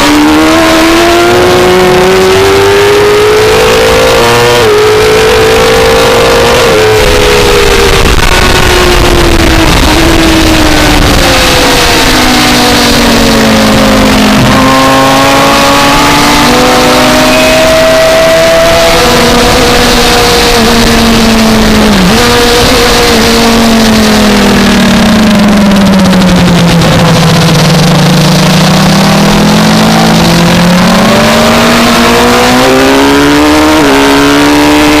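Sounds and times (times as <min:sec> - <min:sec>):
motorcycle engine: 0:00.0 - 0:35.0.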